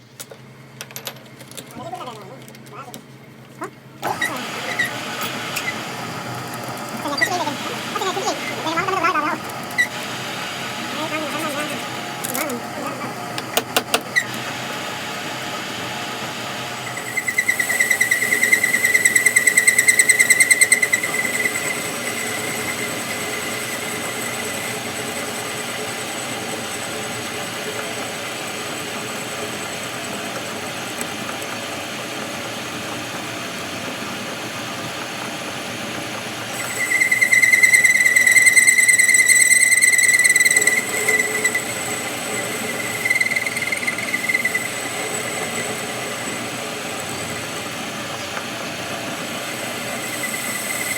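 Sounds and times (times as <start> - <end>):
metalworking machine running: 4.0 - 50.9
high-pitched fluttering whine: 4.1 - 13.2, 16.7 - 30.8, 36.5 - 50.9.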